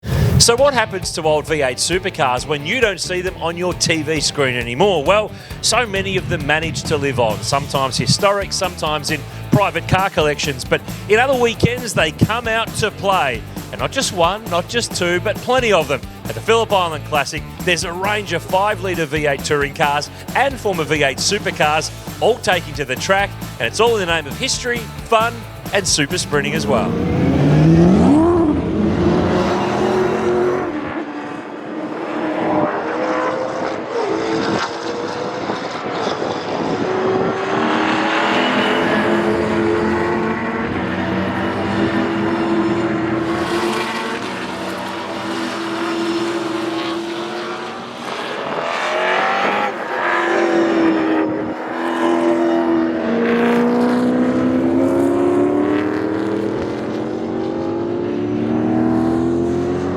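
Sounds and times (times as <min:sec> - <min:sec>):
racing car engines at full throttle: 0:00.0 - 0:59.9.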